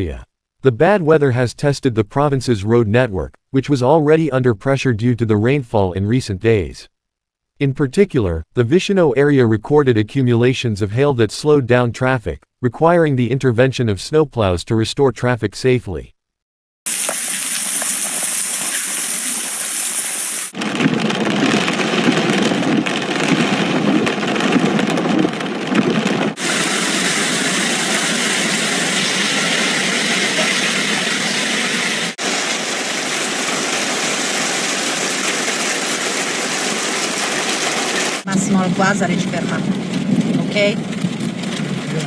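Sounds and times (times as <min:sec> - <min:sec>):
heavy hail and rain: 0:20.6 - 0:42.0.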